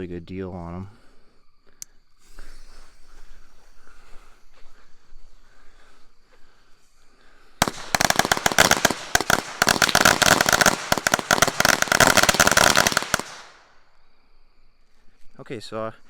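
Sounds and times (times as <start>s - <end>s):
firecrackers crackling: 7.6s - 13.7s.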